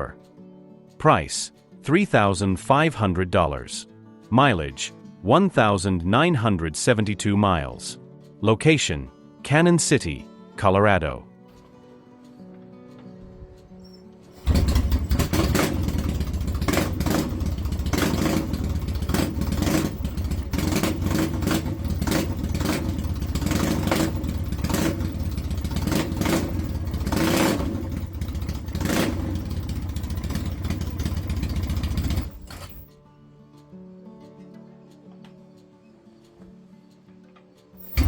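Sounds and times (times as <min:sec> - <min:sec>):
motorcycle engine revving: 0:14.4 - 0:32.8, 0:37.8 - 0:38.0.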